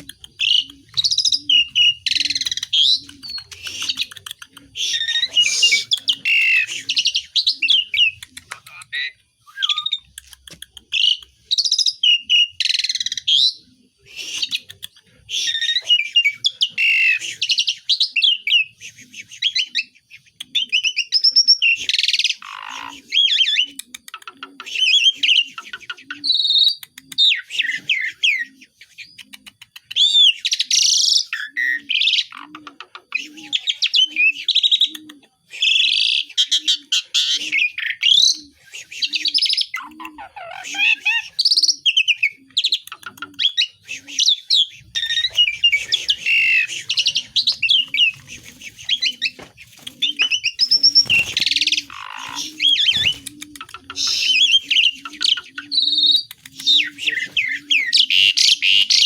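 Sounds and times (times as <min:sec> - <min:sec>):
starling singing: 0:00.0 - 0:10.2, 0:35.6 - 0:59.0.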